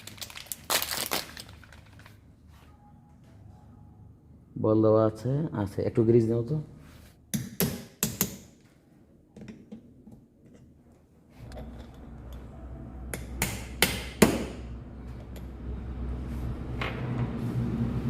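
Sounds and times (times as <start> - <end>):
low engine rumble: 14.5 - 18.0.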